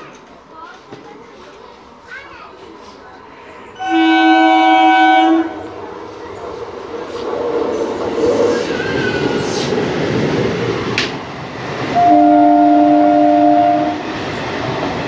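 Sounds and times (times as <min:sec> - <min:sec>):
train running noise: 0:00.0 - 0:15.0
train horn blast: 0:03.8 - 0:05.8, 0:12.0 - 0:14.0.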